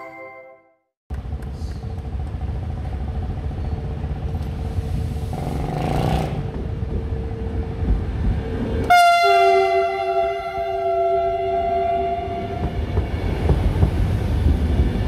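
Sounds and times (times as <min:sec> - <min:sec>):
train rumbling past: 0:01.1 - 0:15.0
hiss: 0:04.7 - 0:05.8
loud train horn: 0:08.9 - 0:12.8.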